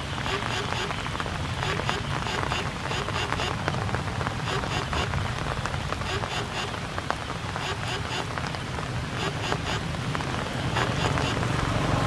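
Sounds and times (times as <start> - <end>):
rain pattering: 0.0 - 12.0.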